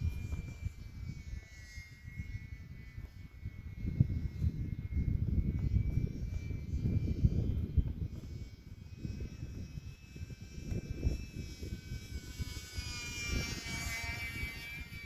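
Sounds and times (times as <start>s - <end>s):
model plane electric motor whine: 0.0s - 15.0s
wind buffeting microphone: 0.0s - 15.0s.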